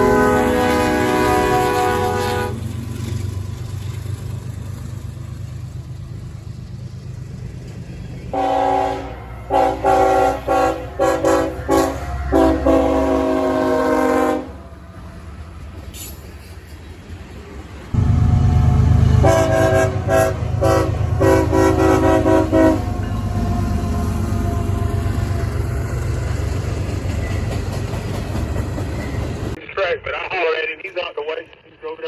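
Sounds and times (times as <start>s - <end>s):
locomotive air horn blasts: 0.0s - 2.7s, 8.3s - 14.8s, 18.0s - 25.4s
passing train rumble: 0.0s - 29.6s.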